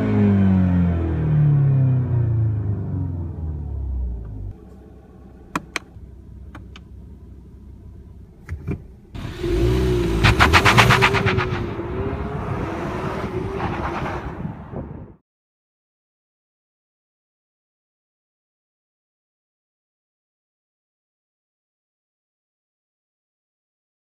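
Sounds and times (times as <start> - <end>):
car accelerating hard: 9.2 - 14.7.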